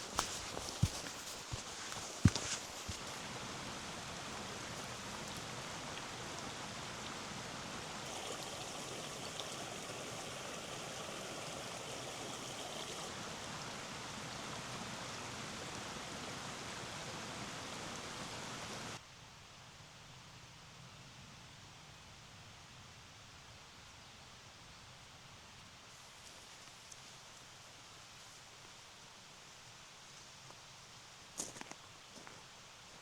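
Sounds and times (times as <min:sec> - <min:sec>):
stream rushing: 0:00.0 - 0:19.0
faint hiss: 0:00.0 - 0:33.0.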